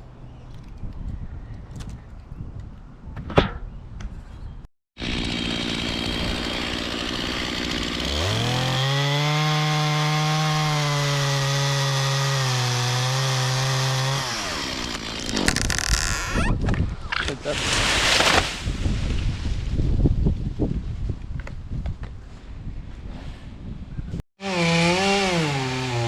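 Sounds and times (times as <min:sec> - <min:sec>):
chainsaw idling and revving: 0:05.0 - 0:15.8, 0:24.4 - 0:26.0.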